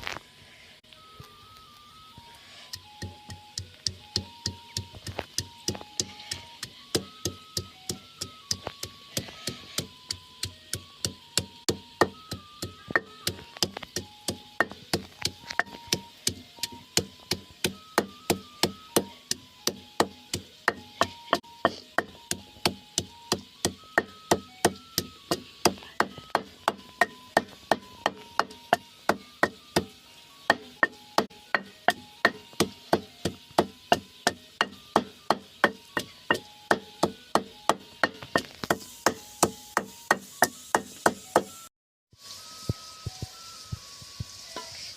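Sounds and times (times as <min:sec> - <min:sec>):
knife chopping on wooden board: 0:08.3 - 0:29.9.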